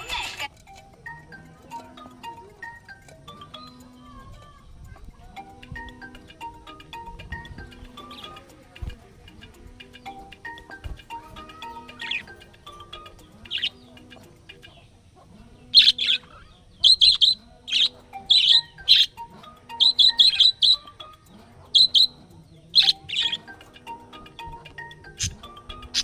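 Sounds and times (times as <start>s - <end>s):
soft background music: 0.0s - 26.0s
budgerigar chirping: 11.9s - 13.9s, 15.7s - 24.0s, 24.9s - 26.0s.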